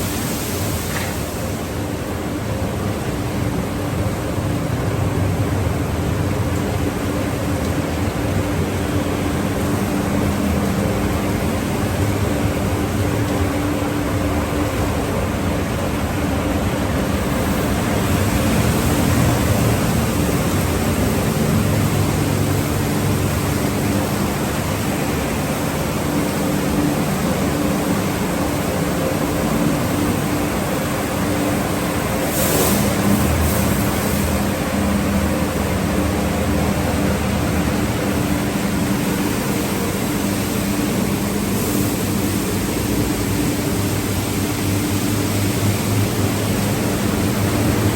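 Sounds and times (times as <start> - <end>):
spraying water and machinery: 0.0 - 47.9
sharp hiss: 32.2 - 34.5.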